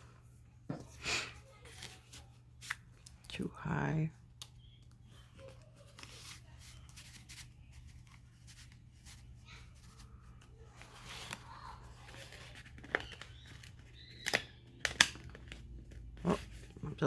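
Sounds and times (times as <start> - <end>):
paper rustling: 5.1 - 17.0.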